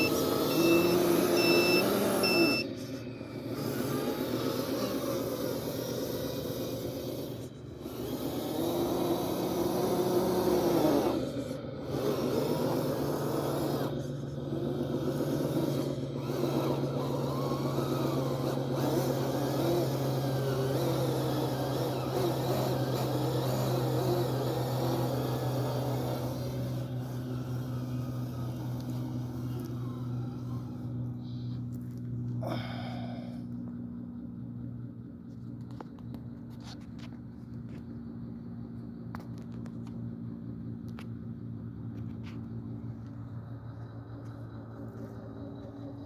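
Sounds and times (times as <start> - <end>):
heavy machinery engine droning: 0.0 - 46.0.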